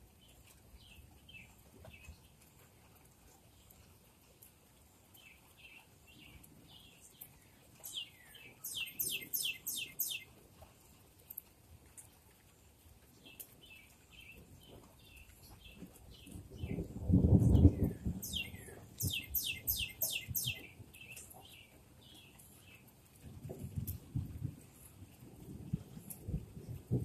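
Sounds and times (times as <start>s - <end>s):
songbird chirping: 5.1s - 10.4s, 13.2s - 22.9s.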